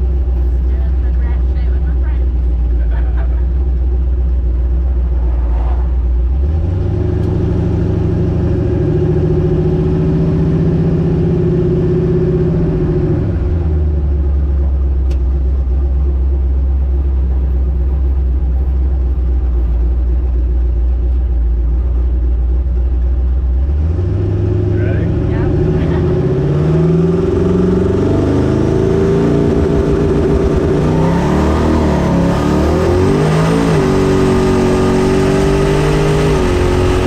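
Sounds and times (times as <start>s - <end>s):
engine accelerating hard: 1.0s - 14.0s, 23.6s - 37.0s.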